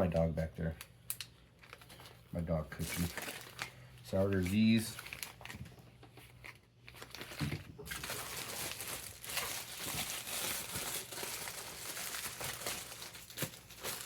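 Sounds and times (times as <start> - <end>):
packaging crinkling: 1.1 - 14.0.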